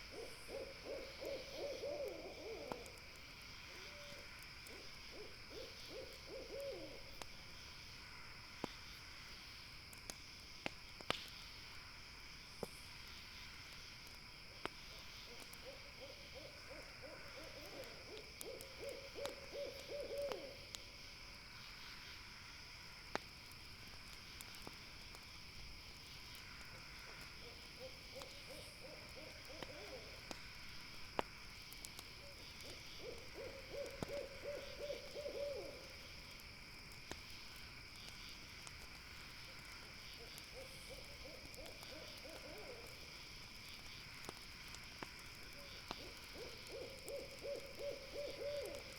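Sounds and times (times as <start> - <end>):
campfire crackles: 0.0 - 48.9
owl calling: 0.1 - 3.0, 3.8 - 7.0, 15.6 - 20.6, 32.6 - 35.9, 46.0 - 48.9.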